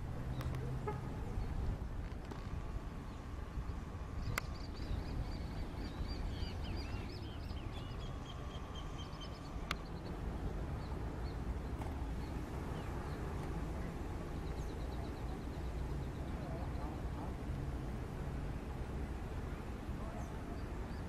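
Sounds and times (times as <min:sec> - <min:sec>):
small birds chirping: 0:03.0 - 0:17.2.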